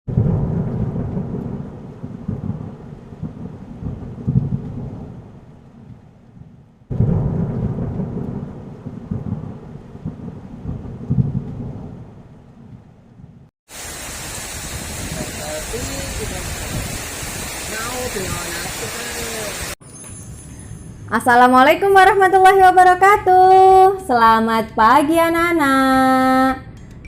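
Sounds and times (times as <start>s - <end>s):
rain: 0.1s - 11.8s, 13.7s - 19.8s
thunder rumbling: 0.1s - 19.8s.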